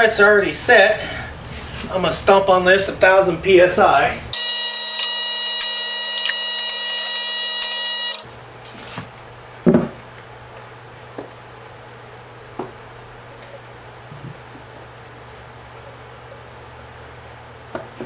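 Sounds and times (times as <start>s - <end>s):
press whine and buzz: 4.3s - 8.7s.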